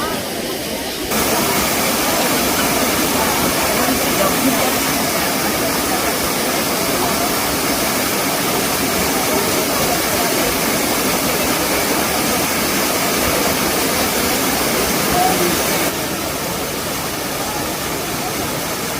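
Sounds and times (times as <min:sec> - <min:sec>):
waterfall rushing: 0:00.0 - 0:18.9.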